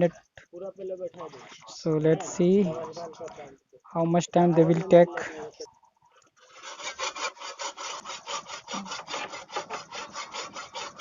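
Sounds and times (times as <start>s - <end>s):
abrasive rasping on brake disc: 6.2s - 11.0s.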